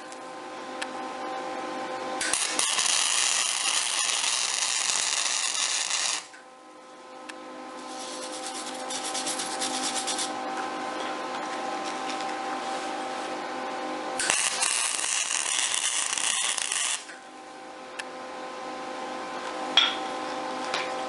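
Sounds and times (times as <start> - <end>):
welder steady hum: 0.0 - 21.0
welding arc crackling: 2.2 - 6.3, 14.2 - 17.2.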